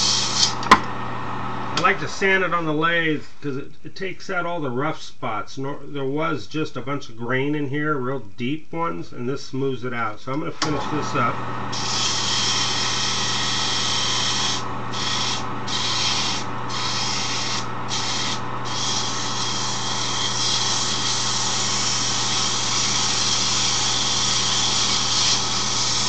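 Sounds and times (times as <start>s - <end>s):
sandpaper hissing on spinning wood: 0.0s - 0.6s, 11.7s - 26.0s
lathe motor hum: 10.6s - 26.0s.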